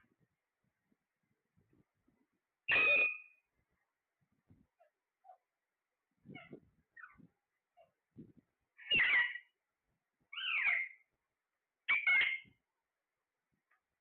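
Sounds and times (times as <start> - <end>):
parrot calling loudly: 2.7 - 3.4, 8.8 - 9.5, 10.4 - 11.0, 11.9 - 12.5
soft short parrot sounds: 2.7 - 3.4, 6.2 - 8.0, 8.8 - 9.5, 10.3 - 11.1, 11.9 - 12.6.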